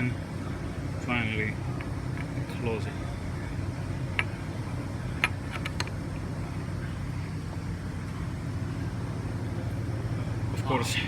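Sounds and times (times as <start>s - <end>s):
parts clicking together: 1.8s - 2.5s, 5.2s - 6.0s.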